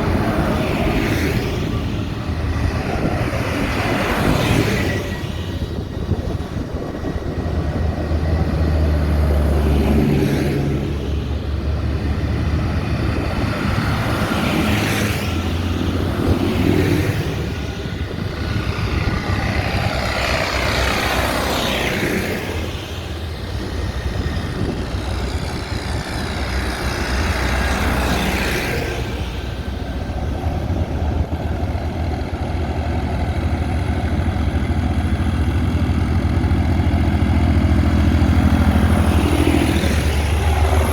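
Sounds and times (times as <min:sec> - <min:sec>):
tractors driving past: 0:00.0 - 0:40.9.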